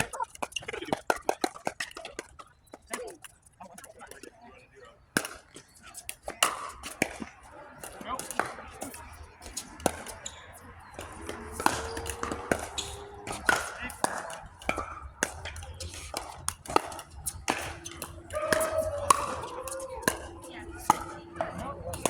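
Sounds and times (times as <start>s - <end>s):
players talking faintly: 0.0s - 22.0s
paddles striking plastic ball: 11.0s - 22.0s.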